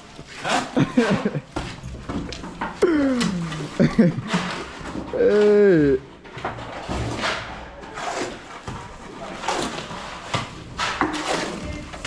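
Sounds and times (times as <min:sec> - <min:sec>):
hand tools scraping wet mortar: 0:00.0 - 0:12.0.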